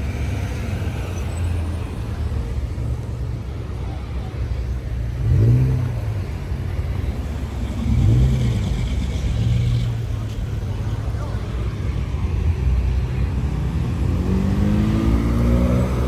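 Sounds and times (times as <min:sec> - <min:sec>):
car engine revving: 0:05.0 - 0:16.0.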